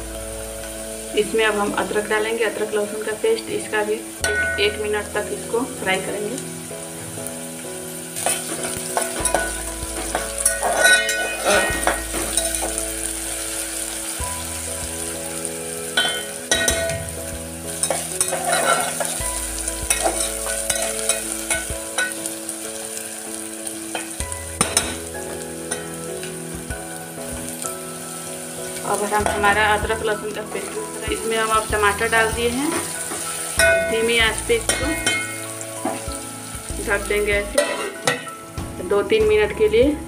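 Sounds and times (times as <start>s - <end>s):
onion paste sizzling in oil: 0.0s - 39.7s
metal ladle scraping pot: 8.2s - 12.8s, 17.8s - 19.3s, 37.6s - 38.3s.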